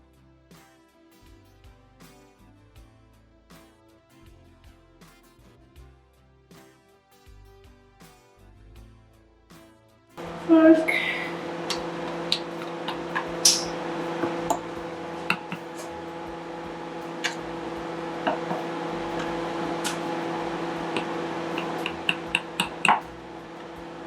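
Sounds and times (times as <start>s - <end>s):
steady hum: 10.2s - 24.0s
fork tapping dough: 11.4s - 23.9s.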